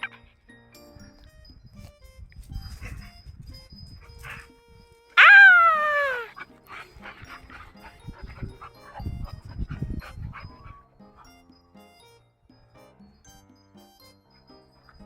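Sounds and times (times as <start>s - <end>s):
faint devotional music: 0.0s - 15.0s
dog whining: 5.2s - 6.4s.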